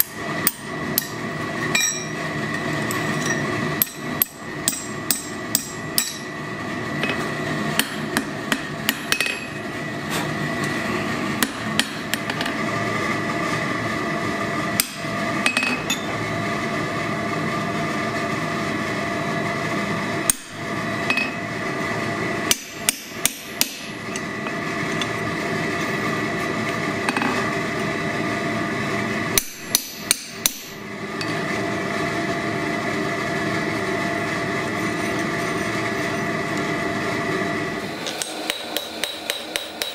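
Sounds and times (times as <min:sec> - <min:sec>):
hammer striking steel on anvil: 0:00.0 - 0:02.2, 0:02.9 - 0:06.4, 0:07.8 - 0:09.6, 0:22.5 - 0:24.0, 0:29.4 - 0:31.4, 0:38.1 - 0:39.9
forge hum: 0:00.0 - 0:39.9.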